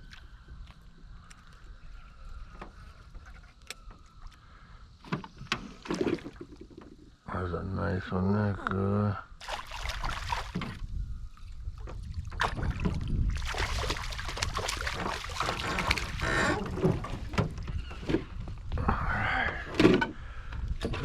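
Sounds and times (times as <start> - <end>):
wind rumbling on microphone: 9.6 - 21.0.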